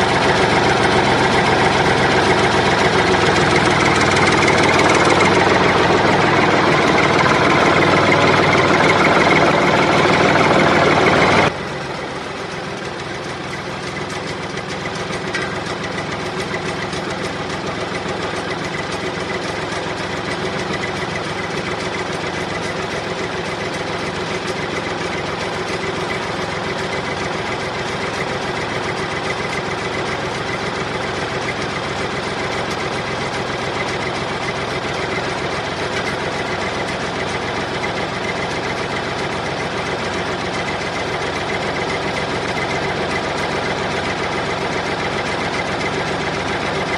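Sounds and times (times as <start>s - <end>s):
engine idling: 0.0s - 46.9s.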